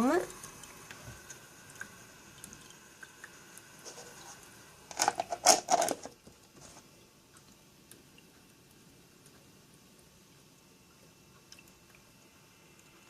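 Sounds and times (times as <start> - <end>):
faint steady hiss: 0.0 - 13.0
clicks and plastic rattling: 4.9 - 6.2.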